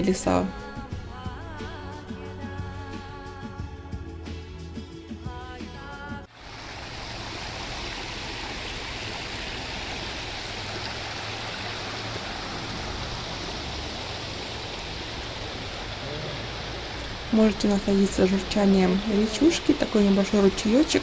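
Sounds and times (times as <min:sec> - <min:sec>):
background music: 0:00.0 - 0:06.3
creek babbling: 0:06.3 - 0:21.0.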